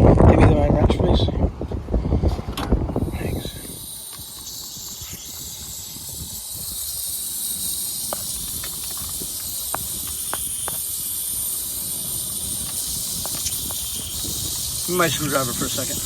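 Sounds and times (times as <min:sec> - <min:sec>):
steady high hiss: 0:02.1 - 0:16.0.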